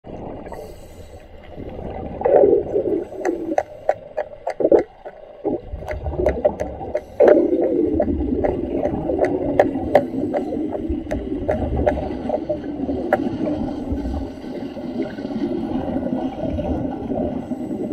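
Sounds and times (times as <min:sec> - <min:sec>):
underwater exhaust bubbles gurgling: 0:00.0 - 0:17.9
sharp underwater clicks: 0:02.2 - 0:13.4.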